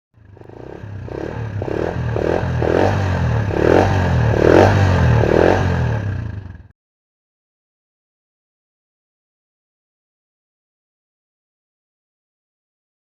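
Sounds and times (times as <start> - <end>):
motorcycle engine running: 0.2 - 6.7.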